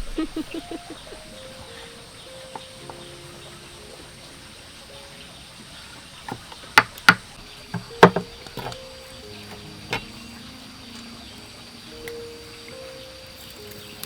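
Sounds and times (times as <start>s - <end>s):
faint steady tones: 0.0s - 14.0s
sharp knocks: 6.3s - 8.8s.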